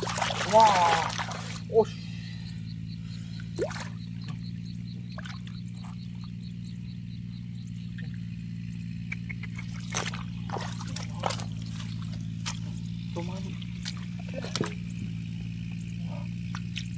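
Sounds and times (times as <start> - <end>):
water splashes: 0.0 - 2.2, 3.4 - 6.4, 9.5 - 15.2
frog chirping: 0.0 - 16.9
steady low hum: 0.0 - 16.9.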